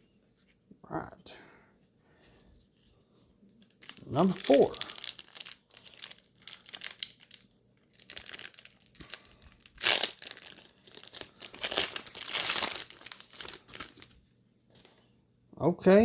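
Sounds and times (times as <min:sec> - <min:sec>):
wrapper tearing and crinkling: 0:03.7 - 0:14.9.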